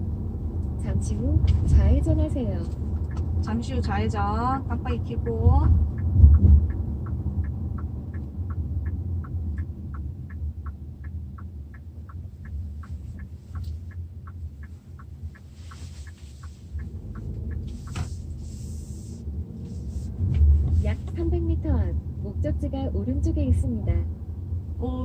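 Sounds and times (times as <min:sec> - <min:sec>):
car driving rumble: 0:00.0 - 0:25.0
turn signal ticking: 0:00.0 - 0:25.0.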